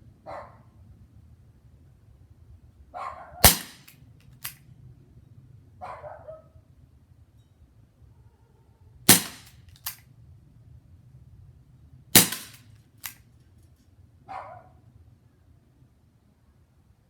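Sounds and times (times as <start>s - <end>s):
air revolver shots: 3.4s - 4.6s, 9.1s - 10.0s, 12.2s - 13.2s.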